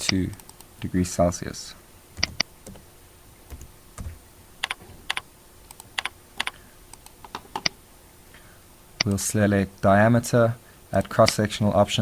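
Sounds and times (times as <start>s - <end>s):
keyboard and mouse clicking: 2.2s - 2.8s, 3.5s - 7.8s.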